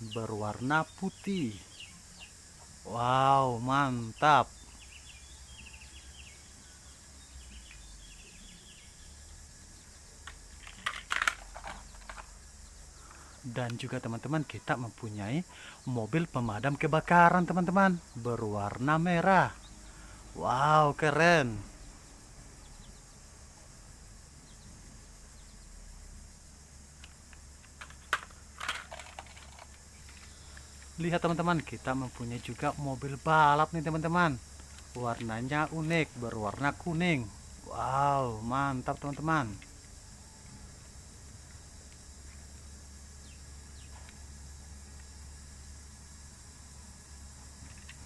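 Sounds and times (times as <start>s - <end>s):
faint background hiss: 0.0s - 48.0s
plastic toy clicks and rattles: 10.2s - 12.3s, 27.6s - 30.3s.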